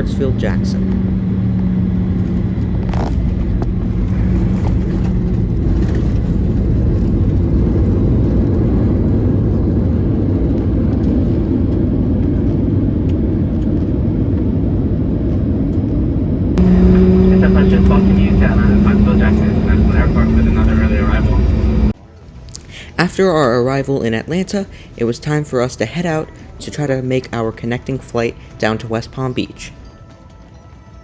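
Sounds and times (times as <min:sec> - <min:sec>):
airplane cabin engine rumble: 0:00.0 - 0:22.0
steady hum: 0:16.6 - 0:22.0.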